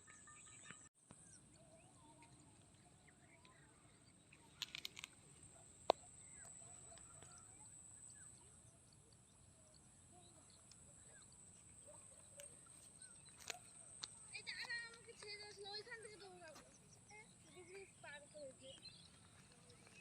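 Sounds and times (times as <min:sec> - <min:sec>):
birdsong chirps and calls: 0:00.0 - 0:20.0
sharp clicks: 0:04.3 - 0:05.2.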